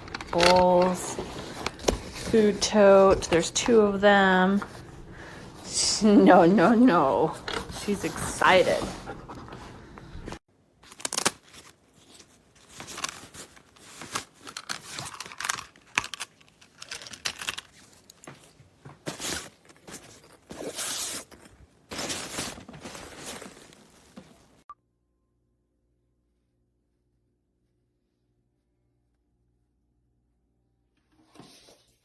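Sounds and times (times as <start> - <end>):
fabric bag rustling and crinkling: 10.8 - 24.6.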